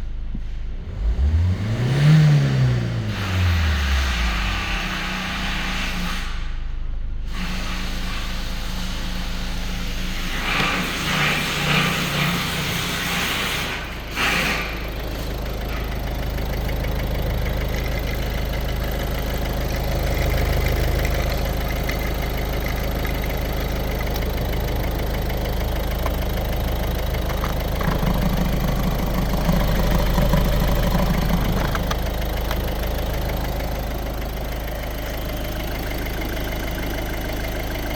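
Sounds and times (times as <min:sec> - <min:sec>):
diesel engine idling: 0:07.8 - 0:37.9.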